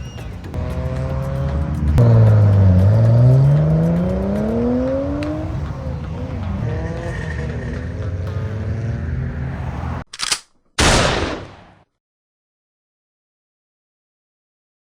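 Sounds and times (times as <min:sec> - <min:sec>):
car engine accelerating hard: 0:00.5 - 0:10.0.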